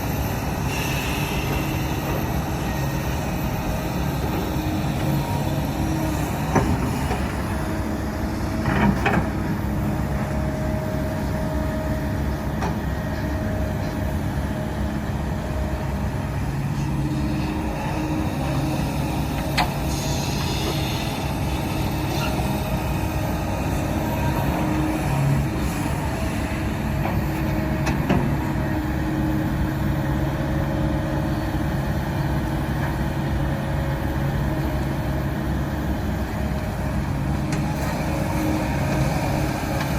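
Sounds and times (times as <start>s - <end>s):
diesel machinery engine running: 0.0s - 39.9s
sharp knocks and clanks: 6.1s - 9.6s.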